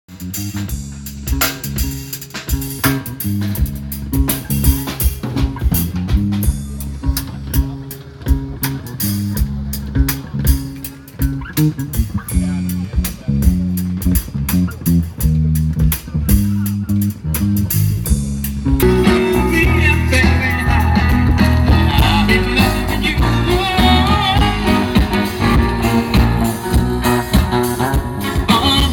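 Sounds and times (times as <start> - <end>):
bass line: 0.1 - 28.9
drum kit beat: 0.1 - 28.9
guitar: 0.1 - 28.9
person singing: 18.8 - 28.9.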